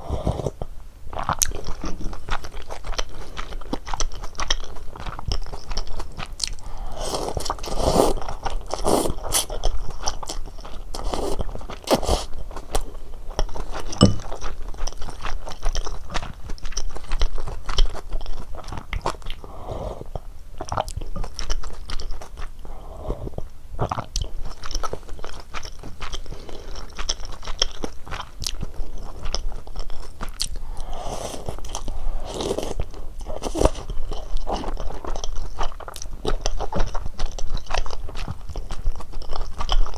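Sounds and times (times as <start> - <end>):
person chewing and biting: 1.2 - 19.4, 23.8 - 36.9.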